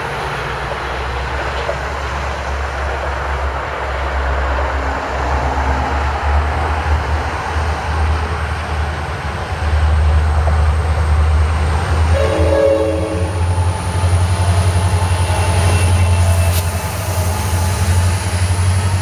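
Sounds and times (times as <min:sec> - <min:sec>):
diesel locomotive engine drone: 0:00.0 - 0:19.0
locomotive horn: 0:12.1 - 0:13.7.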